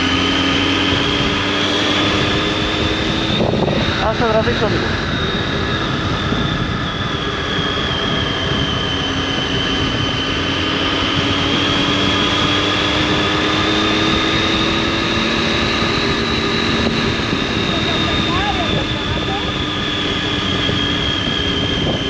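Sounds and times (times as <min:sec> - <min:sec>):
motorcycle engine running: 0:14.0 - 0:20.6.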